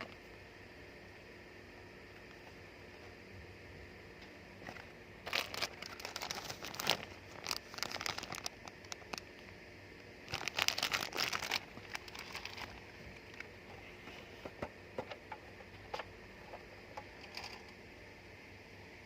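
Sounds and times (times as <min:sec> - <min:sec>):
packaging crinkling and rustling: 0:04.6 - 0:09.4, 0:10.3 - 0:13.5.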